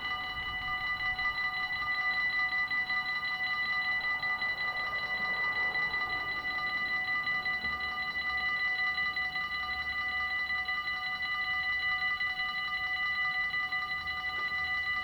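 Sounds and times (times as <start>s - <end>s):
level crossing bell ringing: 0.0s - 10.1s.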